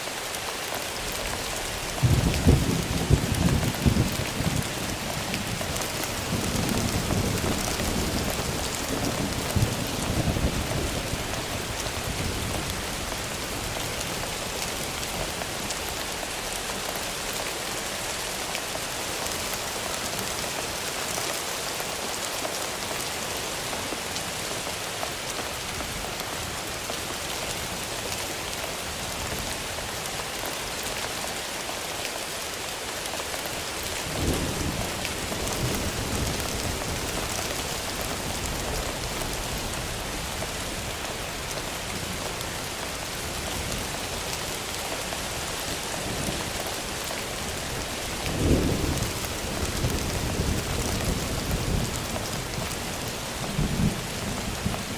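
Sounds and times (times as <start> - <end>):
heavy rain: 0.0 - 54.9
thunder rumbling: 2.0 - 13.7, 45.9 - 54.9.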